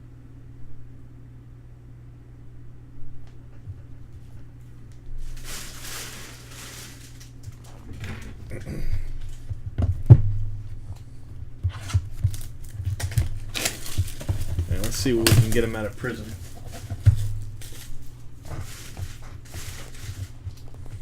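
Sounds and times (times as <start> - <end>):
plastic packaging crinkling and tearing: 4.9 - 8.6, 11.7 - 21.0
handling clicks and knocks: 9.2 - 21.0.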